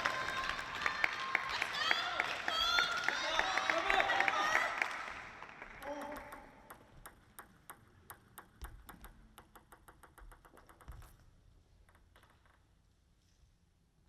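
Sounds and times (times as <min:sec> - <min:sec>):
table tennis ball bouncing: 0:05.7 - 0:12.8.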